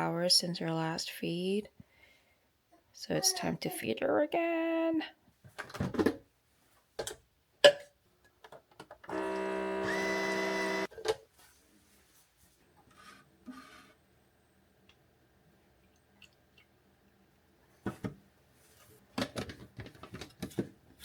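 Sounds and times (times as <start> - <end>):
small electric motor buzzing: 9.1 - 10.9.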